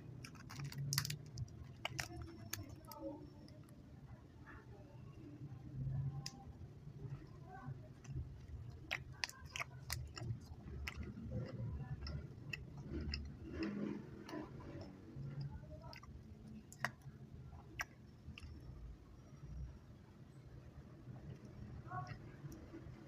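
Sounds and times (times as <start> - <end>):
chewing candy: 0.0 - 3.8, 7.9 - 18.8
wet mouth clicks and smacks: 16.7 - 18.6.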